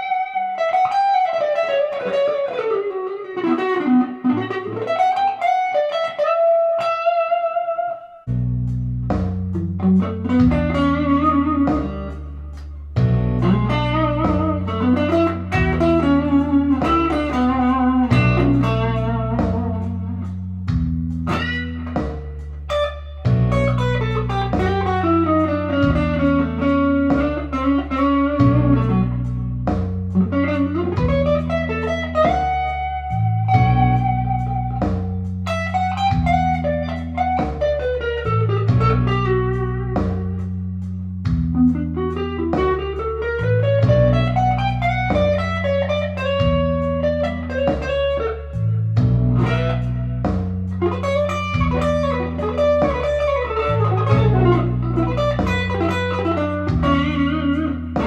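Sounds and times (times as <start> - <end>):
clean electric guitar blues lines: 0.0 - 8.6, 9.4 - 58.0
low bass notes: 8.3 - 58.0.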